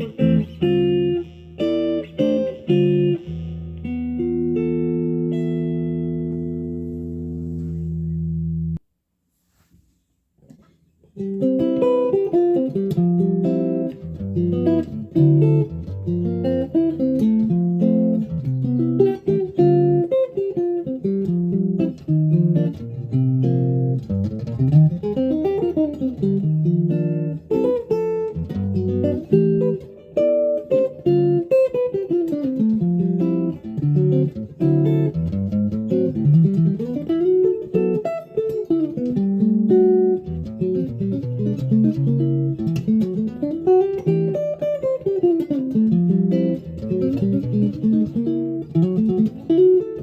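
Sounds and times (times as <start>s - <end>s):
guitar chord: 0.0s - 8.8s.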